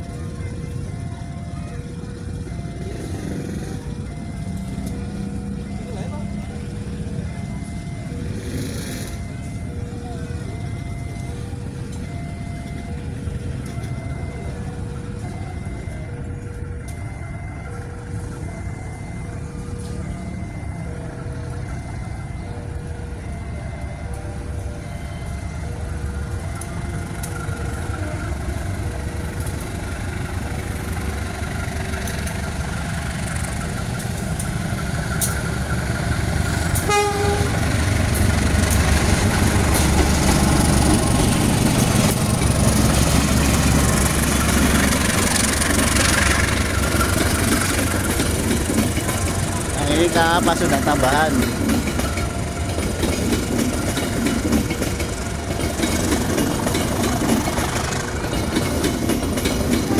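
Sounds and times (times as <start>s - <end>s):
crossing warning signal beeping: 0.0s - 59.9s
locomotive engine: 0.0s - 59.9s
train wheels on rails: 0.0s - 59.9s
train horn blast: 36.8s - 37.8s.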